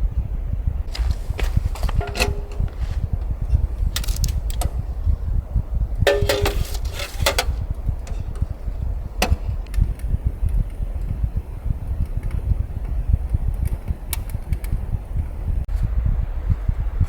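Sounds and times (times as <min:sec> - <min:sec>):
wind rumbling on microphone: 0:00.0 - 0:17.0
camping gear clinking: 0:00.9 - 0:04.8, 0:06.1 - 0:08.4.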